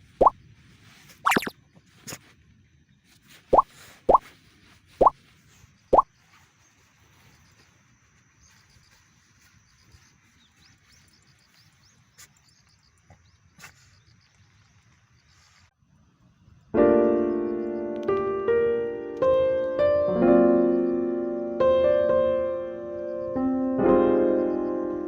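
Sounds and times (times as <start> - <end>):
loud piano music: 16.8 - 25.0.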